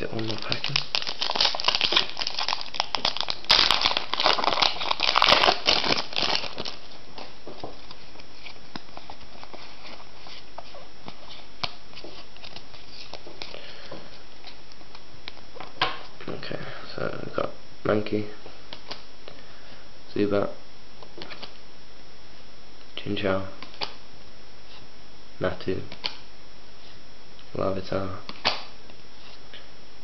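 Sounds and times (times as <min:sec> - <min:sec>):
foil wrapper crinkling and tearing: 0:00.0 - 0:10.6.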